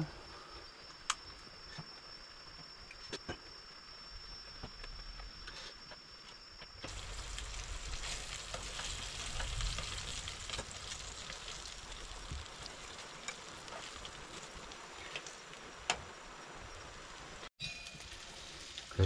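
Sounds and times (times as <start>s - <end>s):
food sizzling in a pan: 6.9s - 19.0s.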